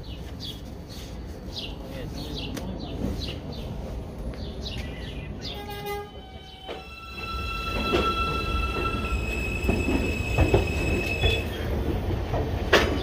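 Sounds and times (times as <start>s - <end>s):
subway train whining tones: 5.2s - 13.0s.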